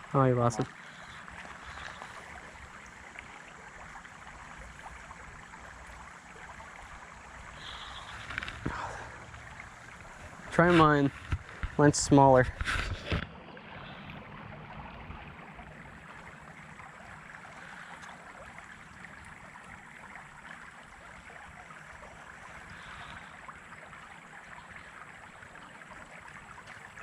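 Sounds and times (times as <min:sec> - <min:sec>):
creek water running: 0:00.0 - 0:27.0.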